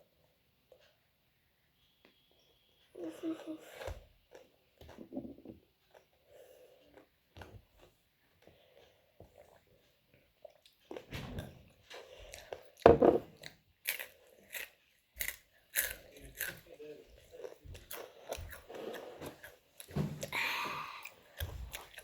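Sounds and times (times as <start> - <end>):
chips being bitten and chewed: 13.4 - 16.6.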